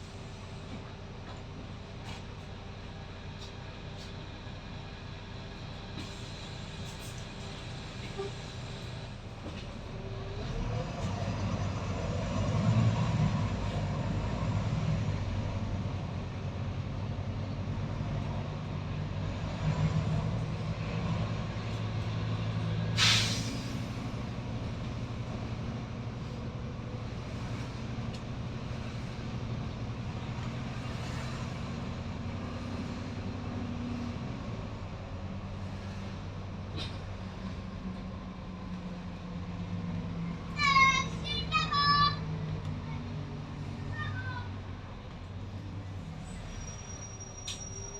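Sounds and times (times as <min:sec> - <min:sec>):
bus diesel engine running: 0:00.0 - 0:47.9
air brake hiss: 0:22.9 - 0:24.2.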